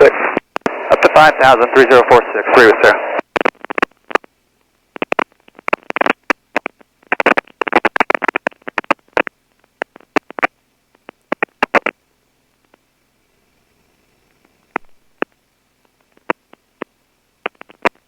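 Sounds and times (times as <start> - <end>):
radio static bursts: 0.0 - 4.3, 5.0 - 10.6.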